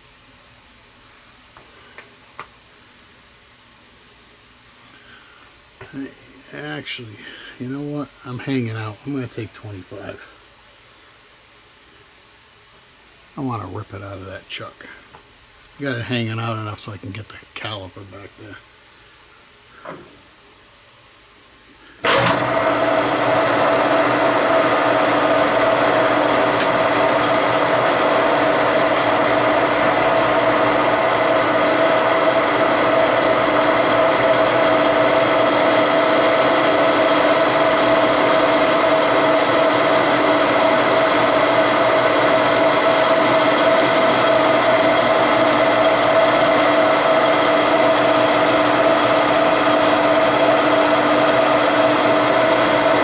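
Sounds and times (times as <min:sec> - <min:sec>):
metal lathe cutting: 0:22.0 - 0:53.0.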